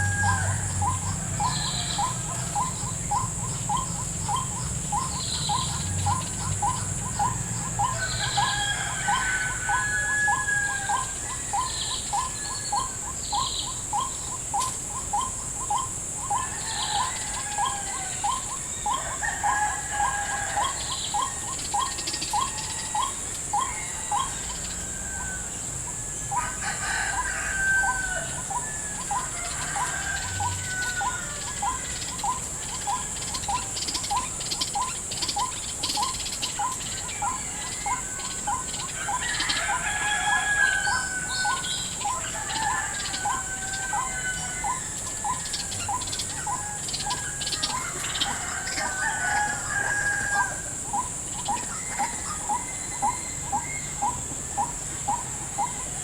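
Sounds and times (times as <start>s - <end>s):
waterhens calling: 16.3s - 56.0s.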